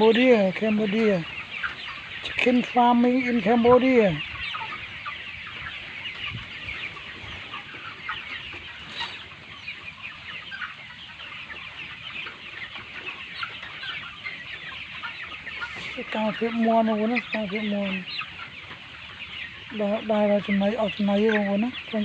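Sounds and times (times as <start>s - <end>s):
chickens clucking and cheeping: 0.0s - 22.0s.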